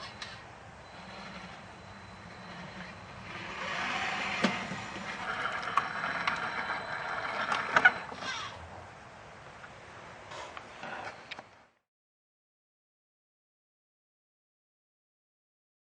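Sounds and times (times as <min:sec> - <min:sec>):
small electric motor whirring: 0:00.9 - 0:08.6.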